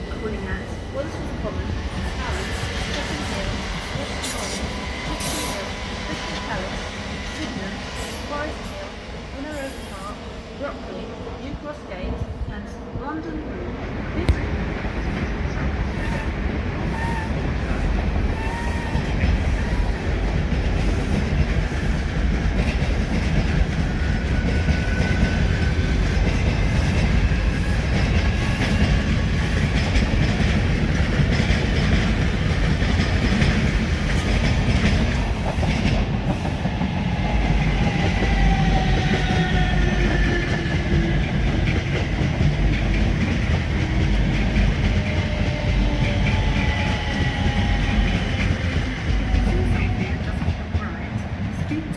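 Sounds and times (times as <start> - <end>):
train wheels clattering: 16.8 - 51.9.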